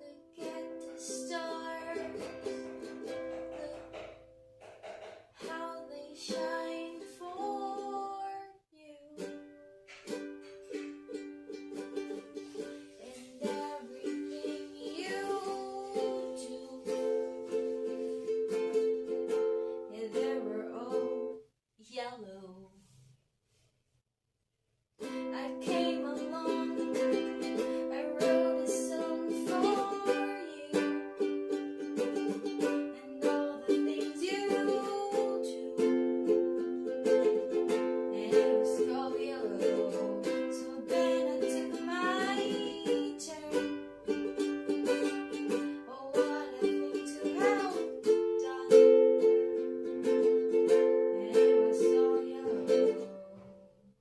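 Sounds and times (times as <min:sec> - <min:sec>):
ukulele strummed chords: 0:00.0 - 0:08.4, 0:09.1 - 0:21.4, 0:25.0 - 0:53.7
ukulele notes sliding up: 0:00.4 - 0:04.3, 0:09.2 - 0:21.2.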